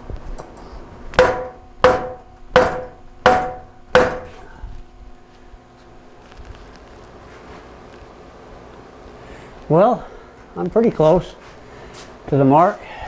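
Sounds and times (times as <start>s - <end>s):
hammer on steel pipe: 1.2s - 4.6s.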